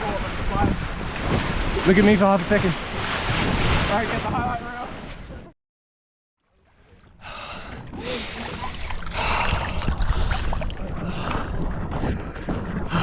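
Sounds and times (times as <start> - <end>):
water rushing past hull: 0.0 - 5.4, 6.4 - 11.9
wind buffeting microphone: 7.8 - 13.0.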